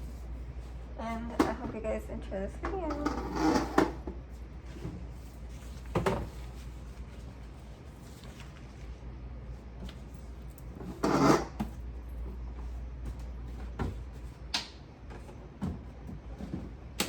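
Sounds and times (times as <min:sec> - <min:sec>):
refrigerator drawers clattering: 0:02.6 - 0:06.7, 0:15.0 - 0:17.0.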